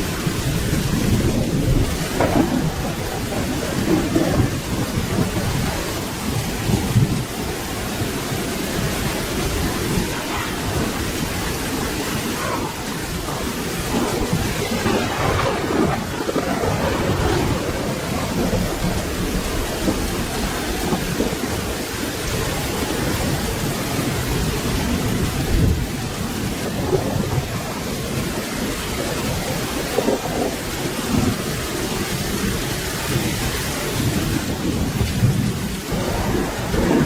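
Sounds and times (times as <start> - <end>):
rolling thunder: 0.0 - 37.0
steady rain: 0.0 - 37.0.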